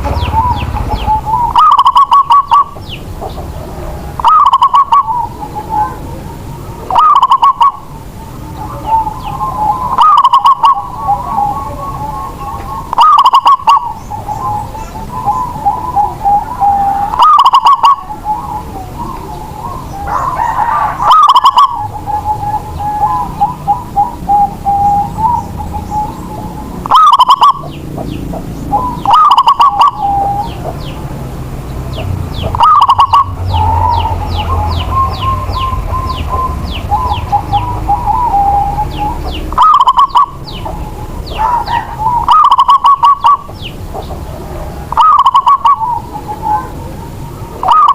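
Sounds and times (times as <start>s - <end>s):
small bird chirping: 0.0s - 3.6s, 21.0s - 44.2s
dove cooing: 0.0s - 47.9s.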